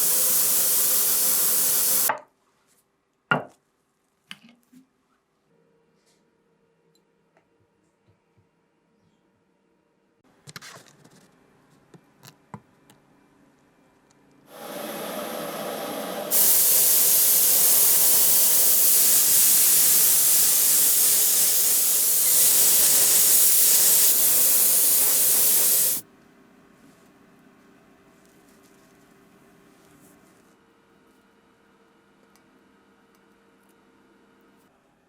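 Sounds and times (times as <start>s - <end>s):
nozzle spraying hiss: 0.0s - 2.1s, 14.5s - 26.0s.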